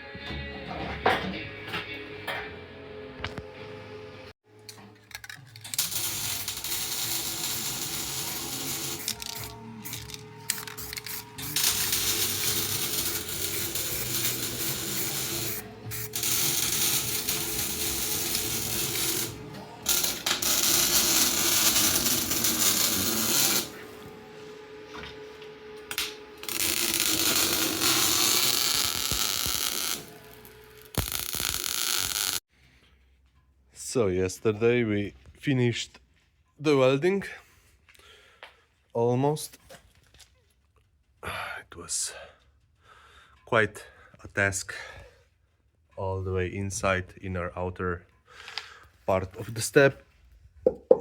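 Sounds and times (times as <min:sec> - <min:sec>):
metalworking power tools: 0:05.6 - 0:32.4.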